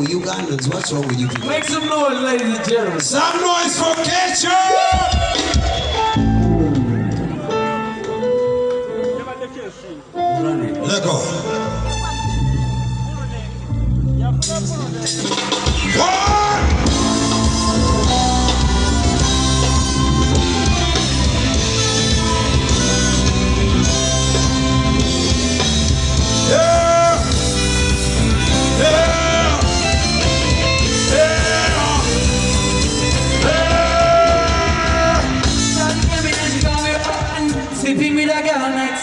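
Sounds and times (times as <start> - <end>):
live band with heavy bass: 4.0 - 9.2, 11.2 - 38.7
person singing long notes: 16.0 - 20.2, 28.5 - 30.0, 30.8 - 32.6, 33.3 - 36.0.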